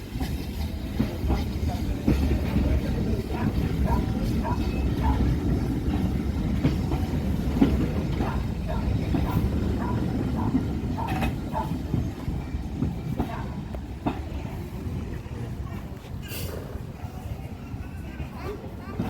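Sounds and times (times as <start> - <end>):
train rumbling on track: 0.0 - 19.0
wheels clicking over rail joints: 0.0 - 19.0.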